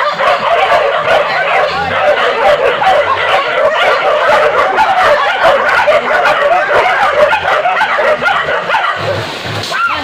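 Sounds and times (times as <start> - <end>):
dogs yelping and baying: 0.0 - 9.2.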